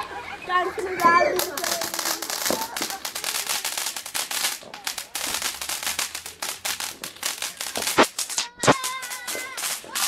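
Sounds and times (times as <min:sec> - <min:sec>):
fireworks crackling: 0:00.7 - 0:10.0
firework bang: 0:07.7 - 0:10.0.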